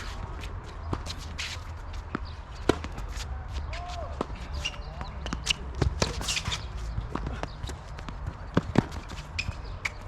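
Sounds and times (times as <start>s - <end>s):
shoes squeaking on court: 0.0s - 10.0s
tennis ball hits and bounces: 2.2s - 3.2s, 5.2s - 10.0s.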